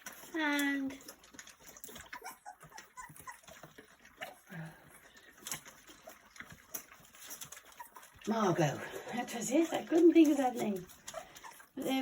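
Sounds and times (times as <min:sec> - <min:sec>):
puppies lapping and chewing: 0:00.0 - 0:12.0
puppy squeaks: 0:01.8 - 0:04.4.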